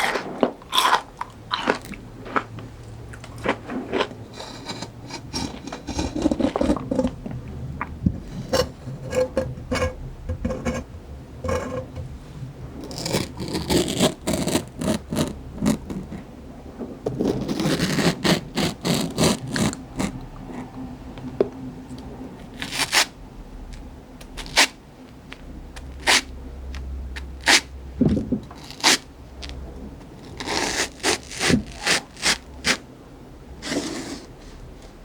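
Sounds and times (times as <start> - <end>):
crunchy fruit chewing: 0.0 - 9.1.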